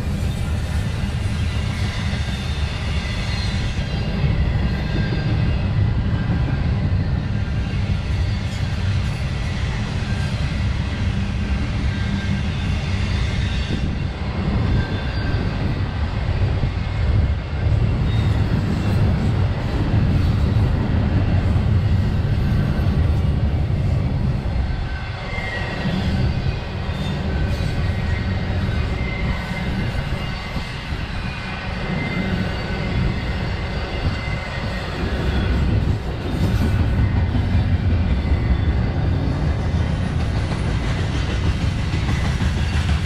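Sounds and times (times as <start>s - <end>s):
freight train rumbling past: 0.0s - 43.0s.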